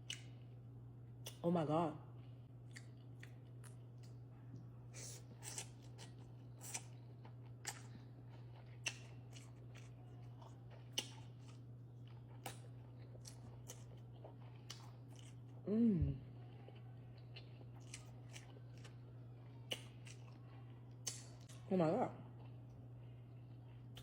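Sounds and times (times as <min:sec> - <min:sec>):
low hum: 0:00.0 - 0:24.0
chewing crab sticks: 0:02.6 - 0:04.2, 0:04.9 - 0:15.6, 0:16.2 - 0:24.0.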